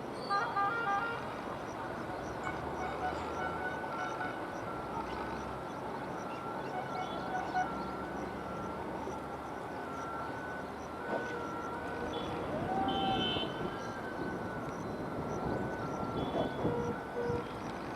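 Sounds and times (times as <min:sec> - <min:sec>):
horn-like tone: 0:00.3 - 0:01.4, 0:02.2 - 0:05.4, 0:06.1 - 0:17.6
vehicle running: 0:01.3 - 0:12.8.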